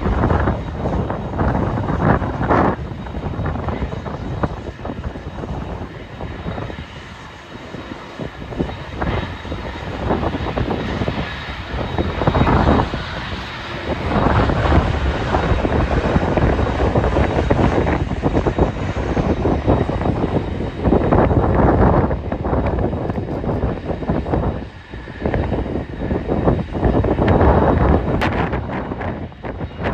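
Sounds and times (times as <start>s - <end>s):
airliner engines running: 0.0s - 29.9s
wind buffeting microphone: 0.0s - 29.9s.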